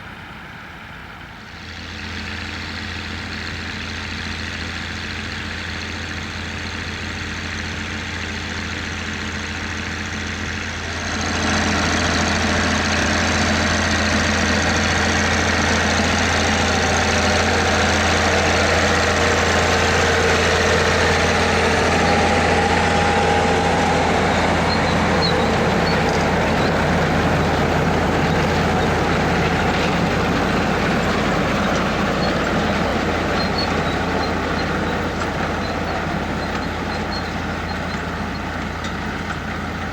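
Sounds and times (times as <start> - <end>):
tractor diesel engine running: 0.0 - 39.9
harvesting machinery rattling: 2.0 - 39.9.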